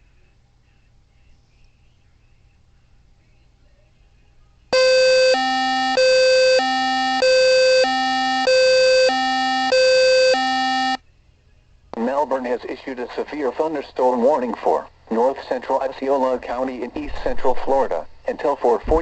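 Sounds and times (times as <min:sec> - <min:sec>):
two-tone electronic alarm beep: 0:04.8 - 0:11.0.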